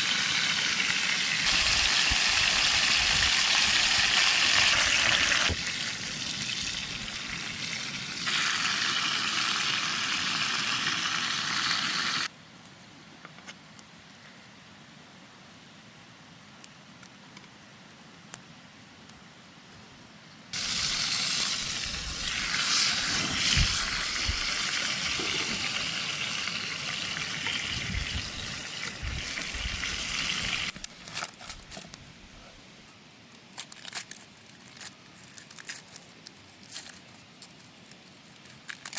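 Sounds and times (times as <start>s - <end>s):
steak sizzling in a frying pan: 0.0s - 12.3s, 20.6s - 30.8s.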